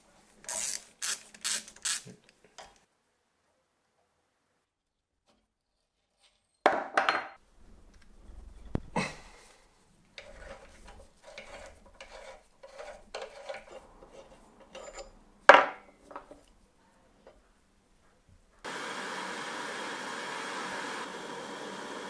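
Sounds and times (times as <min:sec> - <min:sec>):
metal parts scraping and rubbing: 0:00.5 - 0:02.1, 0:10.2 - 0:15.2.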